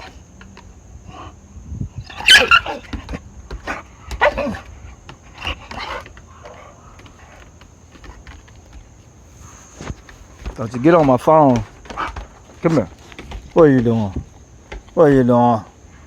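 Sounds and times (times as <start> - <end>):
puppy barking: 2.1 - 3.0, 3.6 - 4.7.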